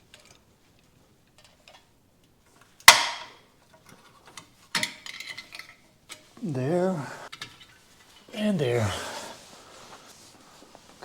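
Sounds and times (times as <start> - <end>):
metal parts clicking and clinking: 3.8 - 6.2.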